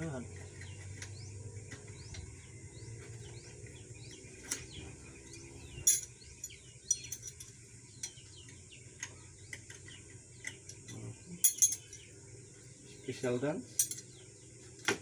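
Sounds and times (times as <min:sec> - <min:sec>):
low steady hum: 0:00.0 - 0:15.0
small birds chirping: 0:00.0 - 0:15.0
metallic clinks of hand tools: 0:05.3 - 0:08.2, 0:10.4 - 0:12.1, 0:13.8 - 0:14.1.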